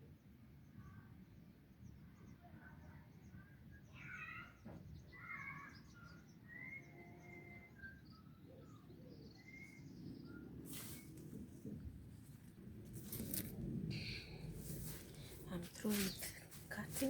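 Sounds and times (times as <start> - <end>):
faint bird chirps: 0.6 - 11.2
low background rumble: 10.0 - 17.0.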